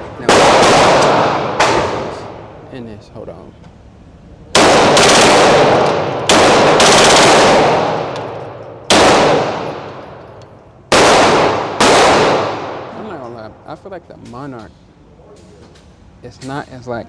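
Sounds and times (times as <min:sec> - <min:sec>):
pistol shots echoing: 0:00.0 - 0:02.6, 0:04.6 - 0:13.3.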